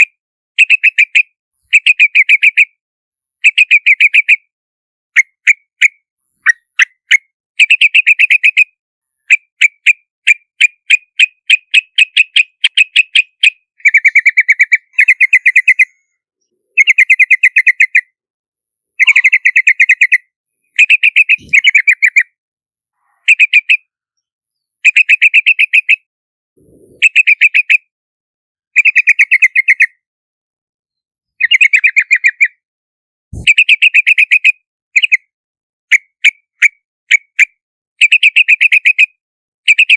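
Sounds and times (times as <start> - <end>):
bird chattering calls: 10.7 - 16.1, 16.7 - 18.1, 19.0 - 22.3, 26.6 - 27.8, 33.4 - 34.5.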